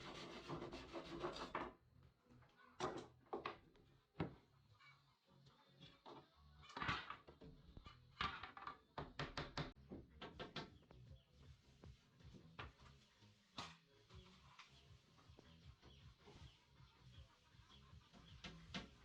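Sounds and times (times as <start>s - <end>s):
wood knocks and taps: 8.3s - 10.7s.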